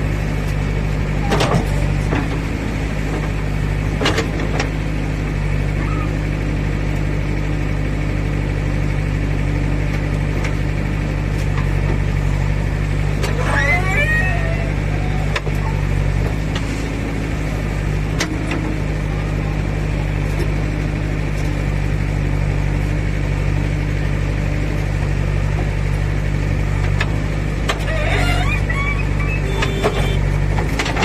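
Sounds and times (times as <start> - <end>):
diesel engine under load: 0.0 - 31.0.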